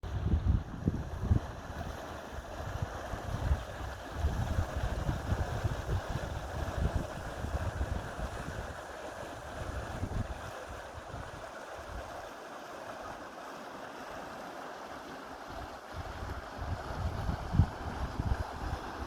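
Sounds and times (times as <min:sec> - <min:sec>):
wind buffeting microphone: 0:00.0 - 0:08.8, 0:09.4 - 0:12.0, 0:15.9 - 0:19.0
flowing river water: 0:00.0 - 0:19.0.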